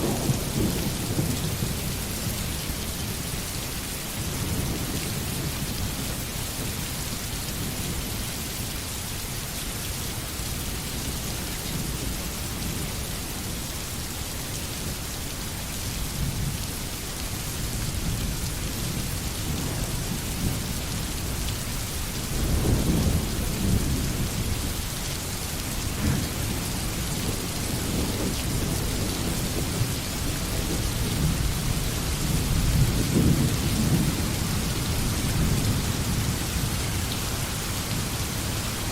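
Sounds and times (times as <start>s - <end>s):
thunder rolling: 0.0s - 1.8s
steady rain hiss: 0.0s - 38.9s.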